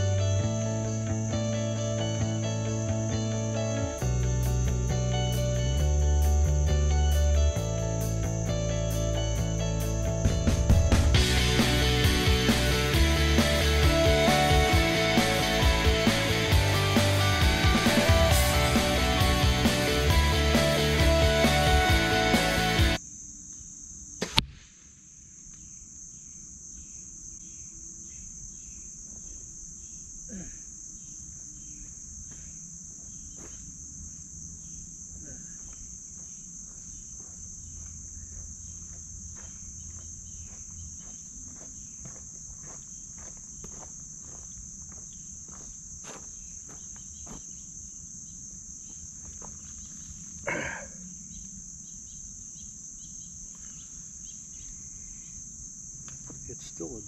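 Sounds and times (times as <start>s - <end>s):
insect chorus: 0.0s - 57.0s
sharp crack: 24.2s - 25.0s.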